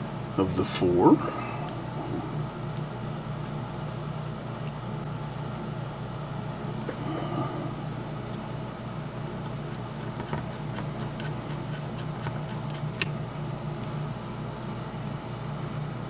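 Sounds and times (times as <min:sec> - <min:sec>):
low background hum: 0:00.0 - 0:16.0
sharp click: 0:12.2 - 0:13.2.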